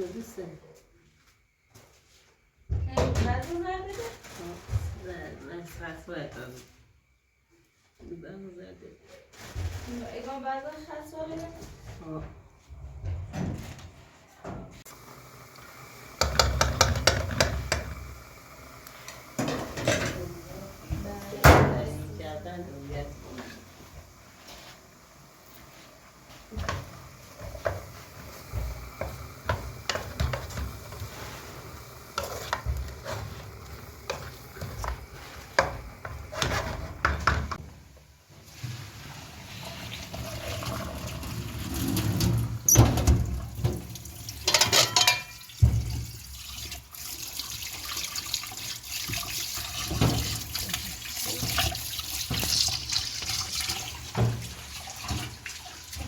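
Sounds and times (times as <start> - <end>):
water splashing and pouring: 38.5 - 44.7, 45.3 - 56.0.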